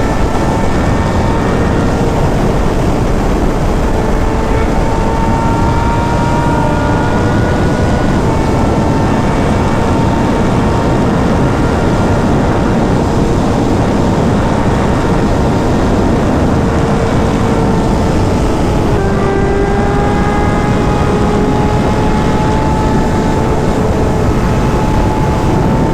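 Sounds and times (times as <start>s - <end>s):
motorcycle engine steady note: 0.0s - 25.9s
wind rush buffeting microphone: 0.0s - 25.9s.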